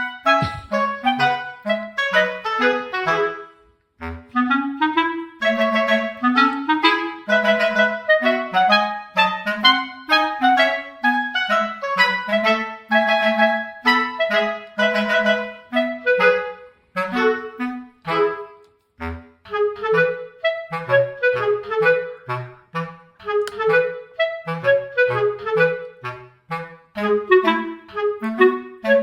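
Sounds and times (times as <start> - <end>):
bouncy woodwind tune: 0.0 - 29.0
bass line: 0.3 - 0.8.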